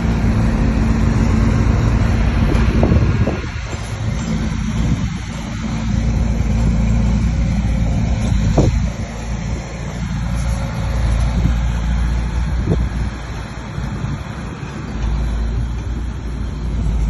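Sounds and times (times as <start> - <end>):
bulldozer diesel engine running: 0.0 - 17.0.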